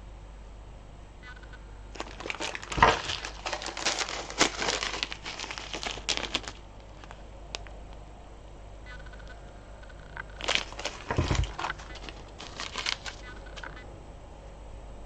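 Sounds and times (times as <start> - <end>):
beads crinkling and clicking: 1.9 - 8.0, 10.2 - 13.8.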